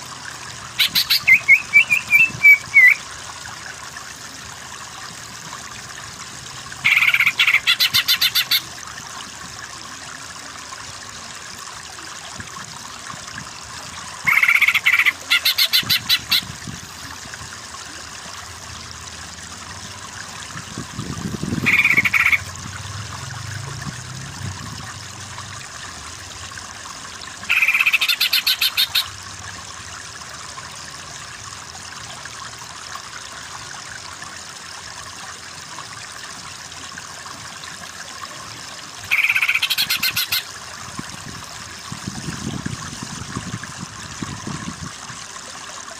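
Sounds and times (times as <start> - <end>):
running stream: 0.0 - 45.9
songbird rattling trill: 0.8 - 3.0, 14.3 - 16.4, 21.6 - 22.4, 27.5 - 29.1, 39.1 - 40.4.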